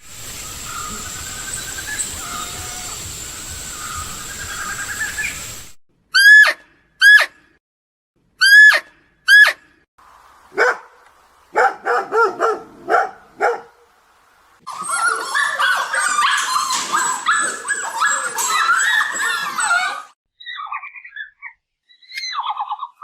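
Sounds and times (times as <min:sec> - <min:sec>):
dog barking and yelping: 0:10.6 - 0:10.9, 0:11.6 - 0:13.8, 0:14.7 - 0:21.2.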